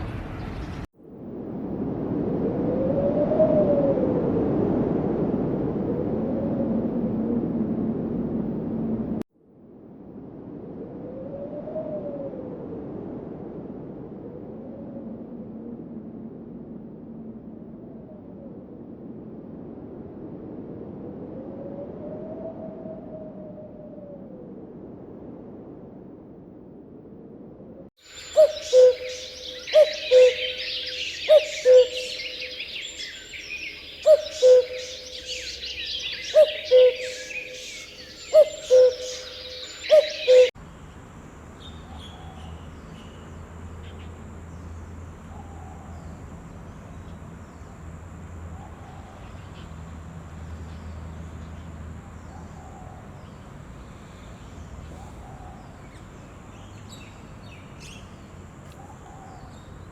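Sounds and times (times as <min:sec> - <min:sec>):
low hum: 0:00.0 - 0:33.2
small birds chirping: 0:28.0 - 0:40.5, 0:48.6 - 0:59.9
bird two-note hooting call: 0:28.3 - 0:32.6, 0:34.1 - 0:35.5, 0:36.2 - 0:37.6, 0:38.3 - 0:40.5.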